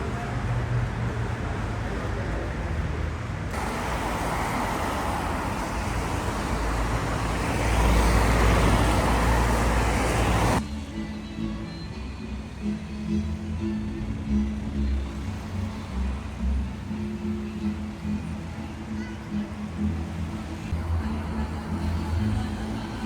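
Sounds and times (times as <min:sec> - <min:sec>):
city street traffic: 0:00.0 - 0:23.0
vehicle passing close: 0:03.5 - 0:10.6.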